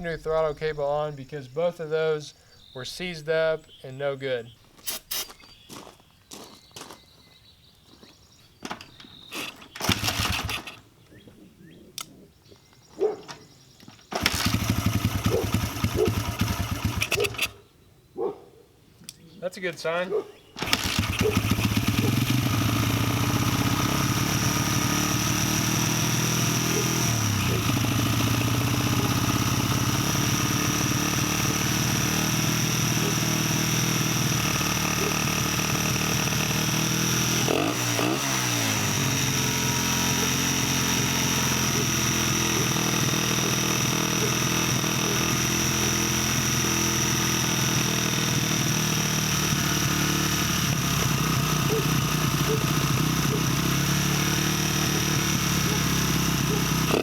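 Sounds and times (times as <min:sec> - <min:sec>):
small motorcycle engine idling: 0:08.7 - 0:11.8, 0:12.9 - 0:17.7, 0:20.4 - 0:57.0.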